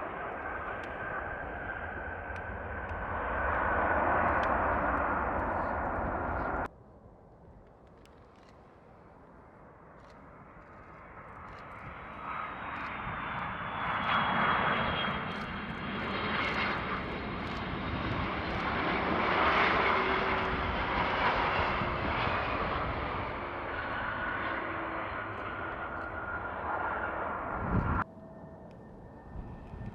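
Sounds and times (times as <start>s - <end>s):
jet airliner landing: 0.0s - 7.2s, 9.2s - 29.9s.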